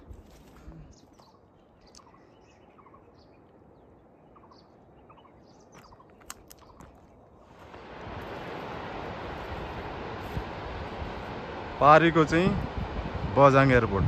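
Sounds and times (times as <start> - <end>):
low outdoor background noise: 0.0 - 14.0
faint bird chirps: 0.6 - 7.3.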